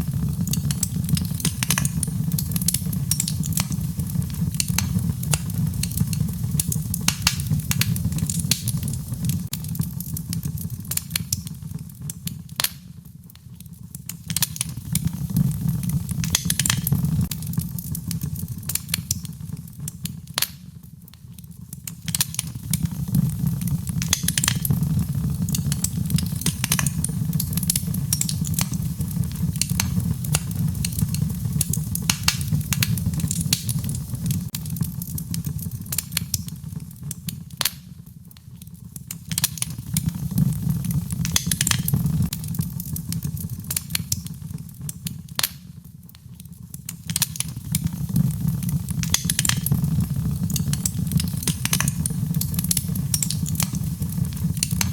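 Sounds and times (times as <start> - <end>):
low rumble of burning: 0.0 - 54.9
wood fire crackling: 0.0 - 54.9
sharp pops: 49.0 - 54.9.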